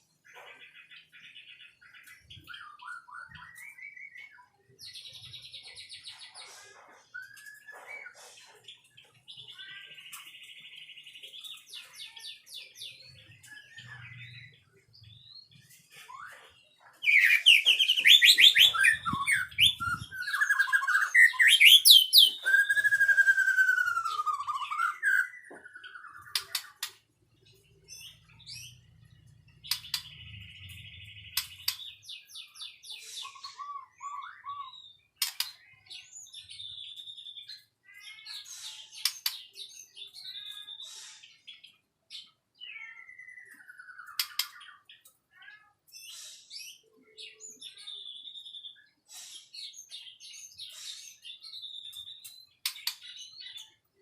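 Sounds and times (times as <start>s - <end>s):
bird twittering and chattering: 0.0s - 54.0s
bird whistles and trills: 0.2s - 11.0s, 15.8s - 27.0s, 29.6s - 45.0s.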